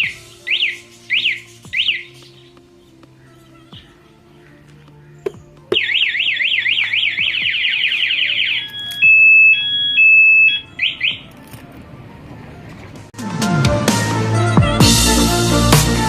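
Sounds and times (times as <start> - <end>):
motorcycle alarm siren: 0.0 - 2.2, 5.7 - 11.4.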